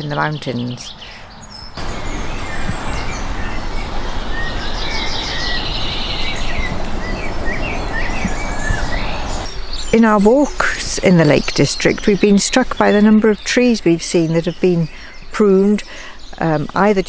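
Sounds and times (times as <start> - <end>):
songbirds singing: 0.0 - 17.0
steady rushing noise: 1.7 - 11.5.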